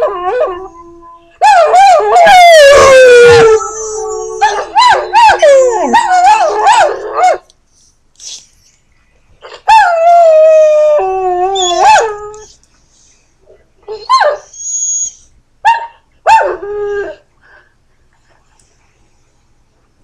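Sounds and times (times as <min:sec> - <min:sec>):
dog howling: 0:00.0 - 0:07.4, 0:09.7 - 0:12.5.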